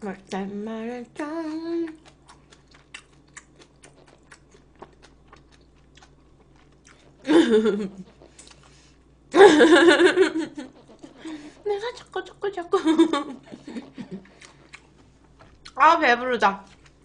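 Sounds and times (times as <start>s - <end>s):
mouth chewing clicks and crunches: 1.8s - 7.2s, 8.1s - 8.8s, 14.2s - 15.8s, 16.6s - 17.0s.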